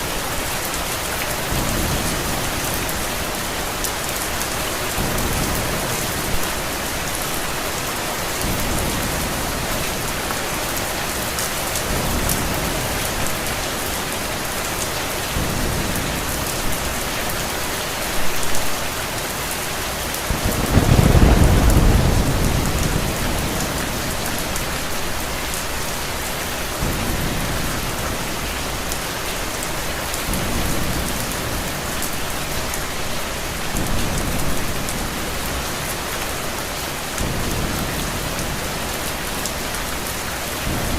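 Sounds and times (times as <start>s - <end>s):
heavy rain: 0.0s - 40.9s
thunder rolling: 20.3s - 25.5s.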